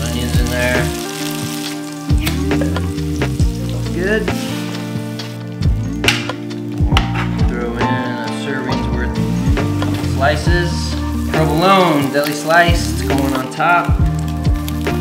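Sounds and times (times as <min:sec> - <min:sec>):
vegetables sizzling in a frying pan: 0:00.0 - 0:05.6, 0:09.2 - 0:15.0
meat sizzling in a pan: 0:00.0 - 0:06.9, 0:08.4 - 0:15.0.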